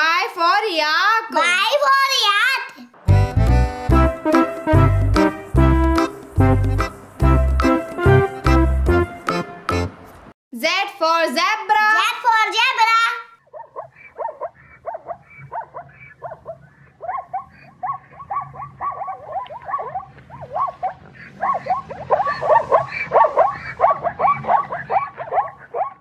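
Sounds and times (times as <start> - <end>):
zebra yelping bark-like calls: 13.4 - 26.0.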